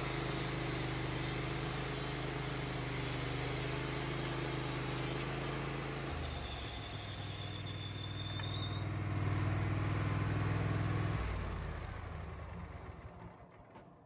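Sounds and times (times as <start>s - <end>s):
sawmill engine running: 0.0s - 10.6s.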